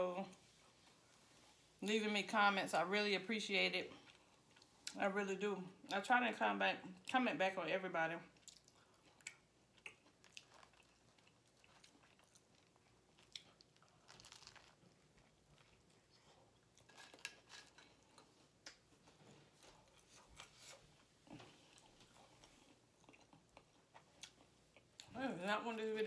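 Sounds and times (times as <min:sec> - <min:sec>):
chewing and biting food: 0:08.3 - 0:25.1
small crunches: 0:08.4 - 0:24.9.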